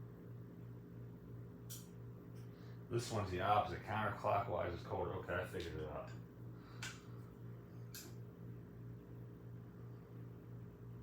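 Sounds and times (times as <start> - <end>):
faint pulsing low hum: 0.0 - 11.0
sharp click: 1.7 - 2.0.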